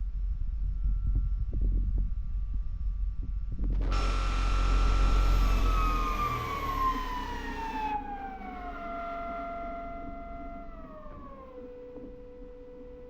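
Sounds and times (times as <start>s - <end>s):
electric motor whining: 3.9s - 13.0s.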